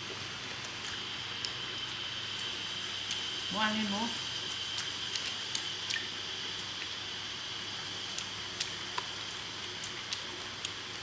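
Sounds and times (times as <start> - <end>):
insects droning: 1.0 - 9.7.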